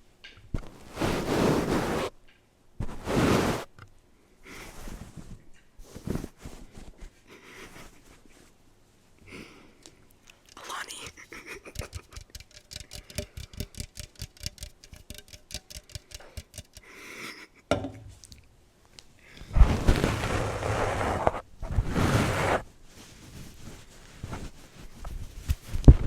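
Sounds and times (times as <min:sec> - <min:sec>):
rapid tapping on microphone: 0:11.4 - 0:16.9
loud noisy rustling: 0:19.6 - 0:22.6.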